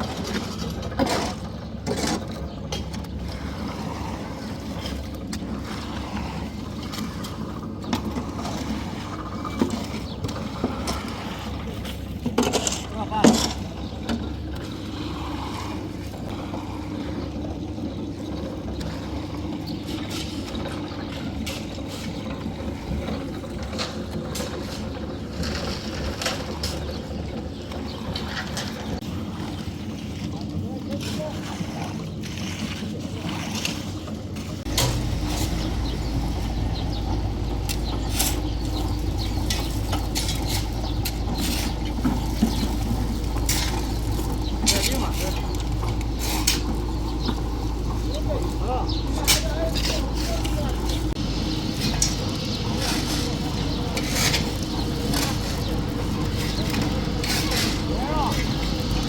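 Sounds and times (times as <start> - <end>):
gritty scraping: 0.0 - 59.0
engine humming: 34.3 - 59.0.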